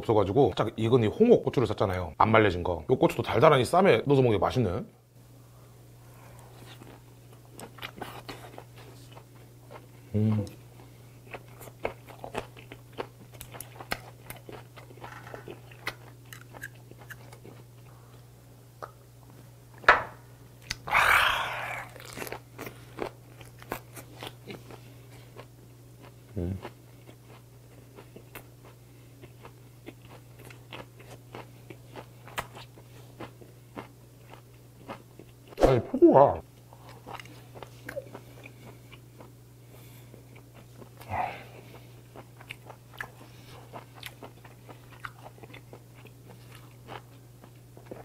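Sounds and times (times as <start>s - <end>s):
wet crunchy chewing: 21.4s - 27.4s.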